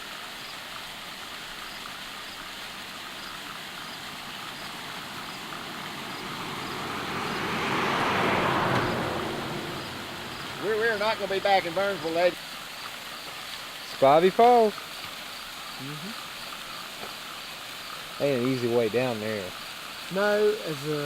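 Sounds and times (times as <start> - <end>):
waterfall rushing: 0.0 - 16.8
car passing: 2.3 - 12.4.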